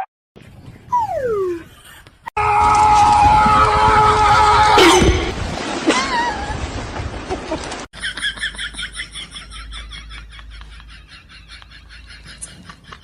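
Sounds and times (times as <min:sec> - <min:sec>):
animal wavering call: 0:00.9 - 0:01.8.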